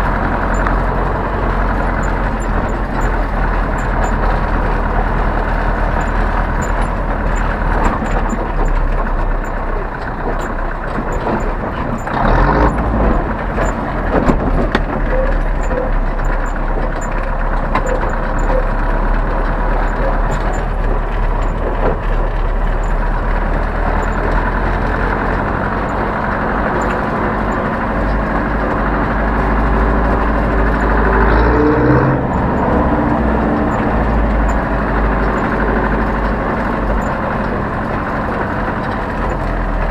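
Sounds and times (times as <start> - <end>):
knocks and rattles: 0.0 - 39.9
tractor diesel engine running: 0.0 - 39.9.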